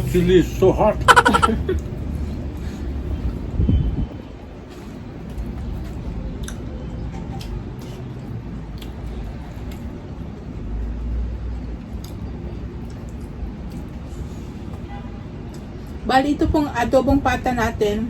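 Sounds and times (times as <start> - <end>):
chewing food: 4.6 - 14.8.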